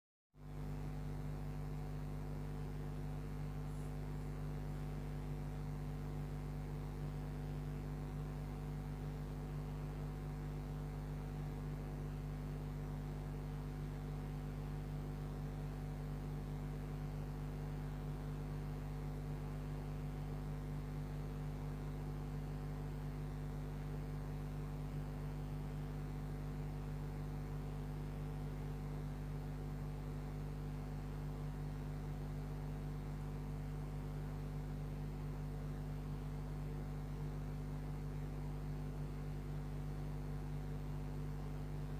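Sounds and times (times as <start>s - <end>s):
steady low tonal hum: 0.4s - 14.2s.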